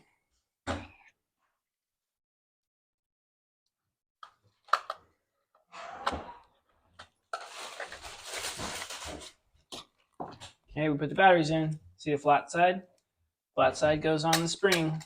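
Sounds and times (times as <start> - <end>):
rustling handling noise: 7.3 - 9.4.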